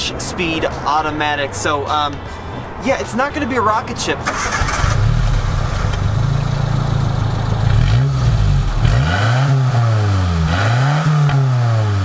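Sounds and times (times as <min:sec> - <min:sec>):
engine idling and revving: 0:04.2 - 0:12.0.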